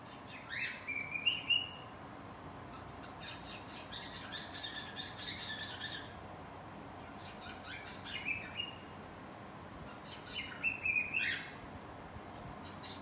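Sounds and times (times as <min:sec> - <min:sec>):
cockatiel chirping and whistling: 0:00.3 - 0:01.8, 0:07.2 - 0:08.8, 0:10.0 - 0:11.5.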